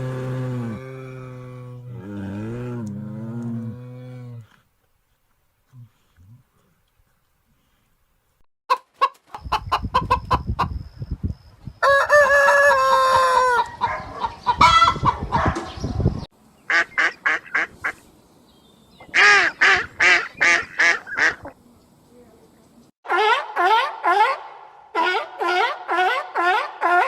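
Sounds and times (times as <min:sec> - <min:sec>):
rooster crowing: 0:11.8 - 0:14.1.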